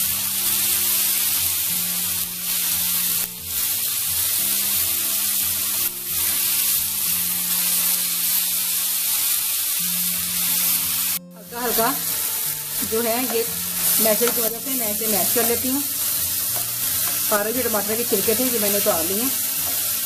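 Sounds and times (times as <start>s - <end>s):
tomatoes sizzling in hot oil: 0.0s - 20.0s.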